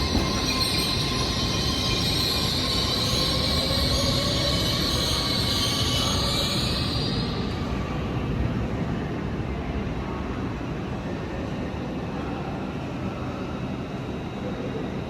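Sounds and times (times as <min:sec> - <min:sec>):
train wheels squealing: 0:00.0 - 0:08.4
train rumbling: 0:00.0 - 0:10.3.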